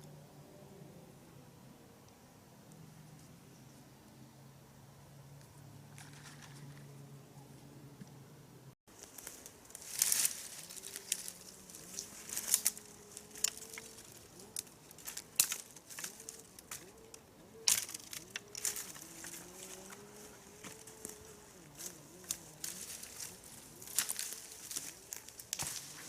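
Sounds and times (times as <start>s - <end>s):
faint wavering hum: 0.0s - 26.0s
dry leaves crunching underfoot: 8.9s - 26.0s.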